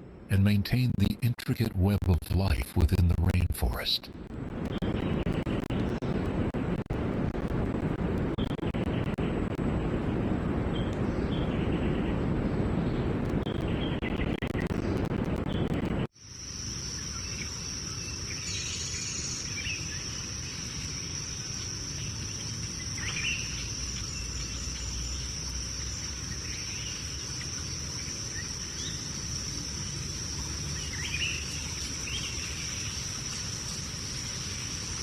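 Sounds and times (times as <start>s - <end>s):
insects trilling: 16.2s - 35.0s.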